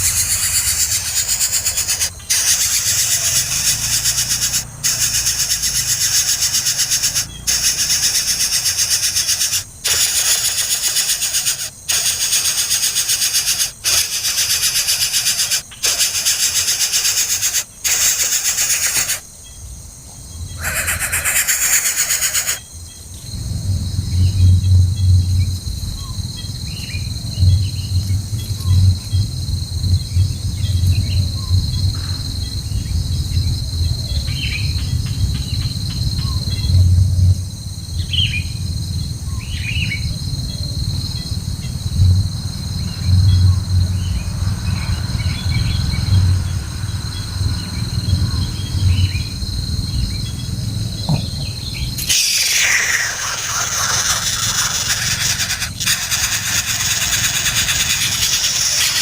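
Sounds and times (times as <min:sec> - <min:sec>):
broad noise: 0:00.0 - 0:19.3
high-pitched insect drone: 0:00.0 - 0:19.4, 0:20.5 - 0:22.8, 0:39.9 - 0:59.0
bird chirps: 0:00.0 - 0:19.6, 0:20.4 - 0:22.6, 0:51.1 - 0:59.0.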